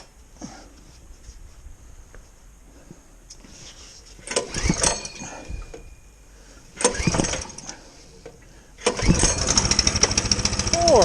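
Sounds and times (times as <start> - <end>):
recoil starter pulls: 4.2 - 5.8, 6.8 - 11.0
small engine running: 6.8 - 7.7, 8.9 - 11.0.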